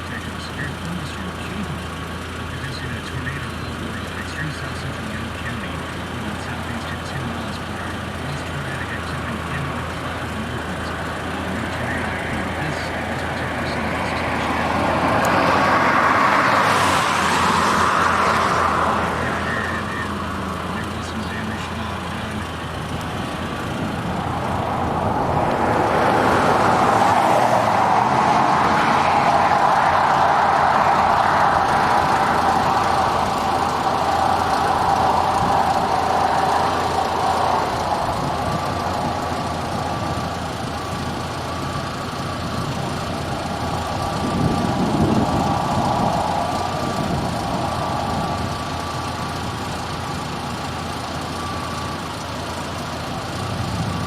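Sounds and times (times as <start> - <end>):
car road and engine noise: 0.0 - 54.0.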